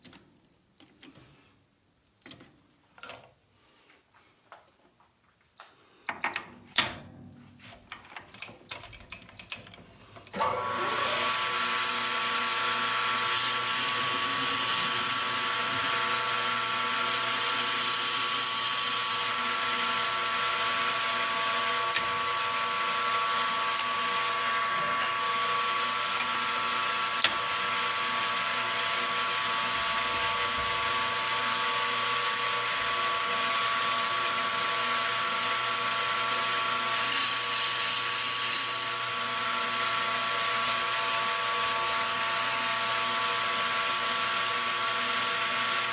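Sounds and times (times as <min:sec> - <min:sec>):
electric motor humming: 0:10.4 - 0:32.4, 0:36.8 - 0:39.2.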